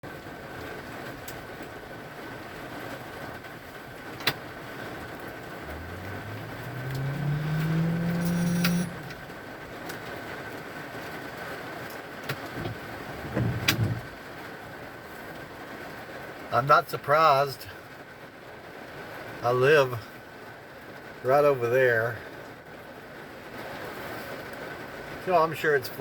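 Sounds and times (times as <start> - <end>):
heavy rain hissing: 2.1 - 9.9
vehicle engine accelerating: 4.6 - 10.1.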